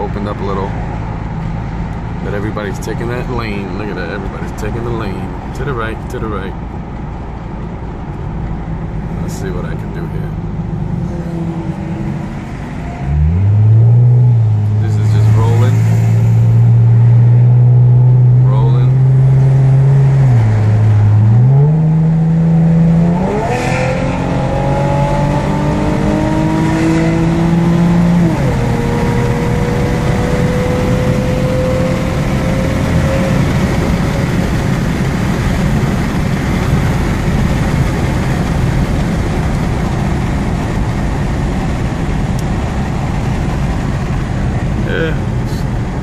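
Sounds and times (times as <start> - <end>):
car engine accelerating: 0.0 - 46.0
road and wind noise: 0.0 - 46.0.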